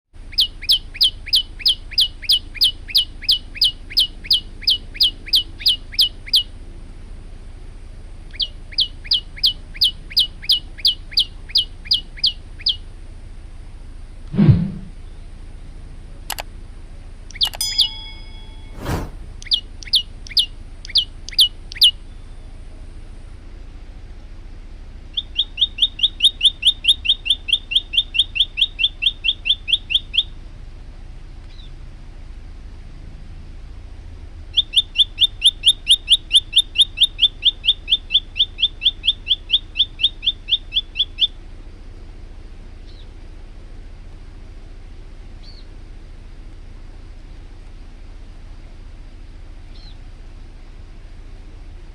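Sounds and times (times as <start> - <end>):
bird singing sharp repeated notes: 0.3 - 6.5, 17.3 - 22.0, 25.2 - 30.3, 34.5 - 41.4
bird calling sharp falling notes: 17.4 - 19.6.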